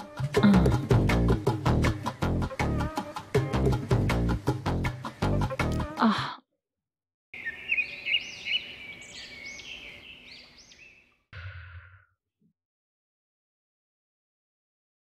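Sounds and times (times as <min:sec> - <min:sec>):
quick high bird chirps: 0:07.4 - 0:11.2.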